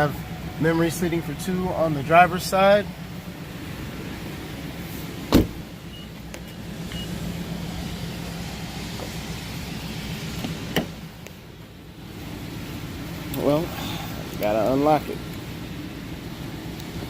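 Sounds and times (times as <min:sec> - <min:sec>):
car door latch knock: 0:05.3 - 0:05.6.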